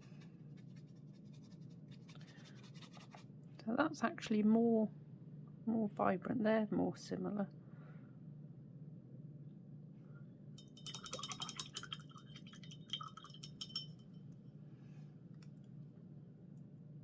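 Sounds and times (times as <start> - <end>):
paintbrush clinking against glass jar: 10.6 - 14.2.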